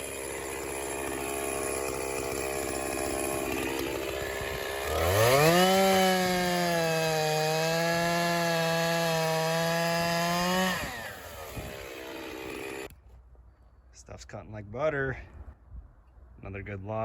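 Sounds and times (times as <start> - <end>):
chainsaw cutting log: 0.0 - 12.9.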